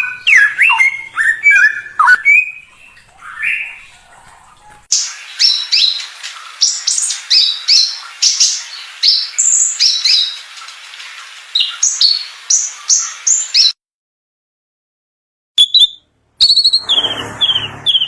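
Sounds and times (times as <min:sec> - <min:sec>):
songbird singing sharp notes: 0:00.0 - 0:02.7.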